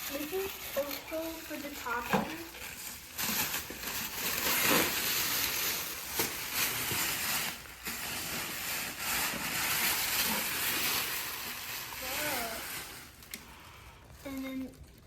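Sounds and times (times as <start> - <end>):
plastic packaging rustling: 0.0 - 15.0.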